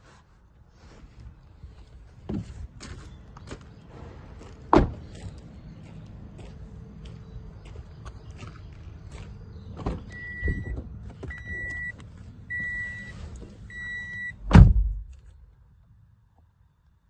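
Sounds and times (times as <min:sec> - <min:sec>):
car warning beeper: 0:10.1 - 0:14.5
heavy thump: 0:14.4 - 0:15.1.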